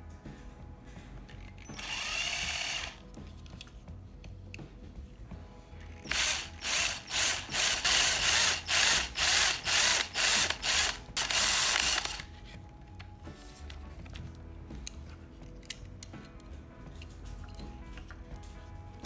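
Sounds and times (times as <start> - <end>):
rhythmic abrasive rasping: 6.0 - 12.3.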